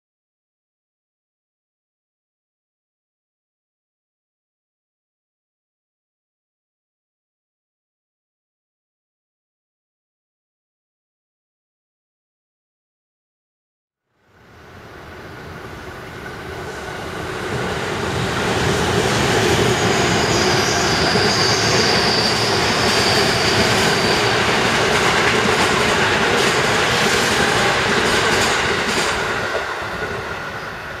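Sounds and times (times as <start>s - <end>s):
train wheels rumbling on rail: 14.6s - 31.0s
high wheel squeal: 19.1s - 25.0s.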